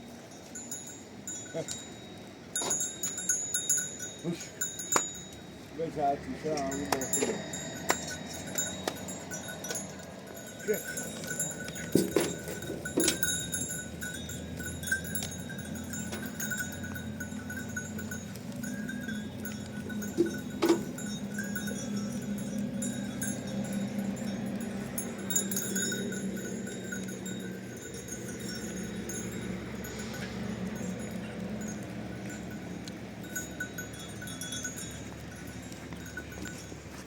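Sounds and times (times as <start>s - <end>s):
livestock bells clanking: 0.0s - 37.0s.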